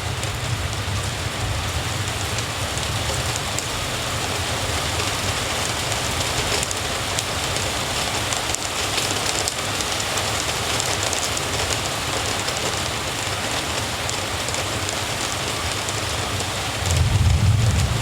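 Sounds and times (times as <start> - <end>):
steady rain falling: 0.0 - 18.0
low rumble: 16.8 - 18.0.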